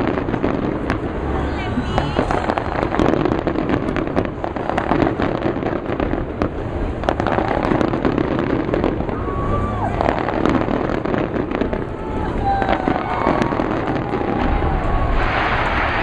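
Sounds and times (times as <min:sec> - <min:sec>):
continuous rumble: 0:00.0 - 0:16.0
fireworks bangs and crackling: 0:00.0 - 0:16.0
crowd voices: 0:00.2 - 0:04.9, 0:06.6 - 0:16.0
falling firework whistle: 0:08.9 - 0:10.8, 0:11.5 - 0:16.0.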